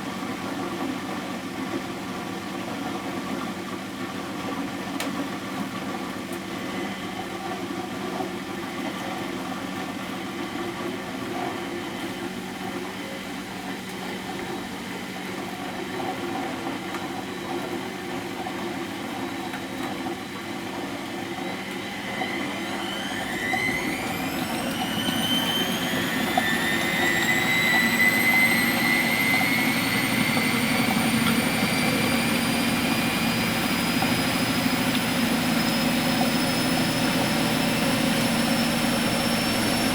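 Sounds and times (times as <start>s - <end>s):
washing machine running: 0.0s - 39.9s
motor whine rising in pitch: 21.3s - 39.9s.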